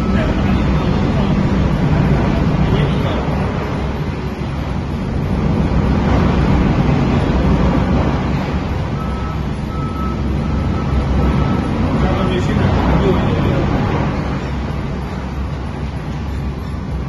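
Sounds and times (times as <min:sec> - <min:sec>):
reversing alarm beeping: 0:00.0 - 0:06.6, 0:08.8 - 0:13.5
heavy machinery rumbling: 0:00.0 - 0:17.0.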